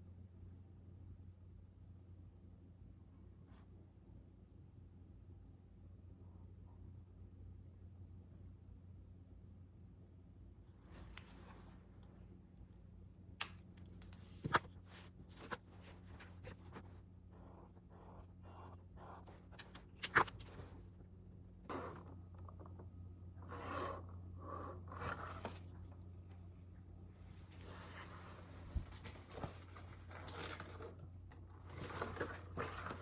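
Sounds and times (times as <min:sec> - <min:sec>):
steady low hum: 0:00.0 - 0:33.0
short rustling or scraping: 0:27.4 - 0:30.8.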